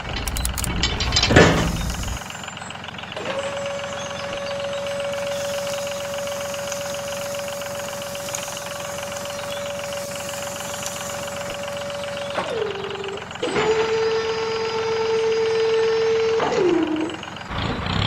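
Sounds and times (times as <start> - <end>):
small electric motor whining: 3.3 - 17.2.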